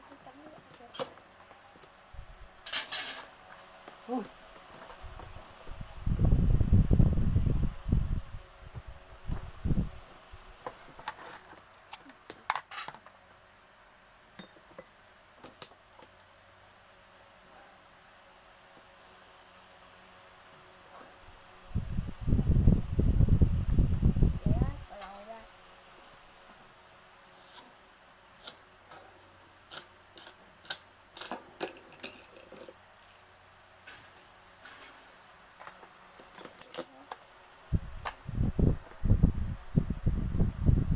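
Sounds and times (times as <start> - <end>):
small hard parts clicking: 29.7 - 32.8.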